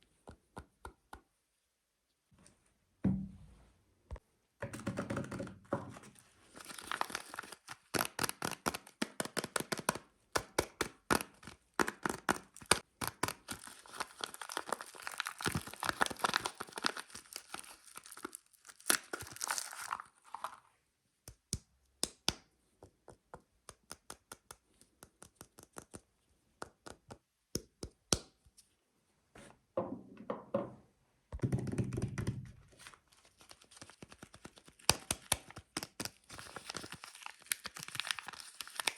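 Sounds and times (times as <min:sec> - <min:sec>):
wrapper crackling being torn: 0:06.6 - 0:20.6, 0:33.3 - 0:38.9.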